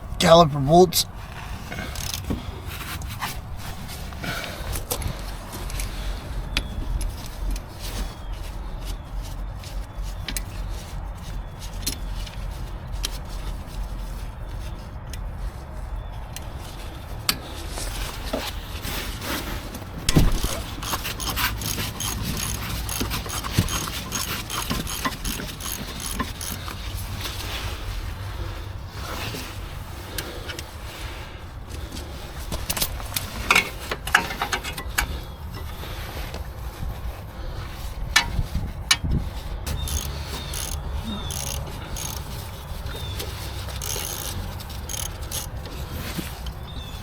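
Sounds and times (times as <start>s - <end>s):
wrench clinking on metal: 20.2s - 26.9s, 39.7s - 42.4s, 43.6s - 45.6s.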